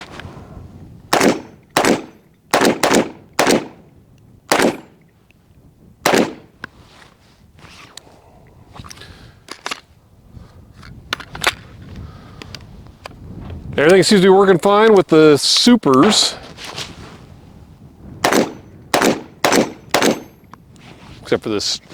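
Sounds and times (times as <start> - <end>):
pistol shots: 1.1 - 3.9, 4.5 - 5.0, 6.0 - 6.5, 18.2 - 20.4.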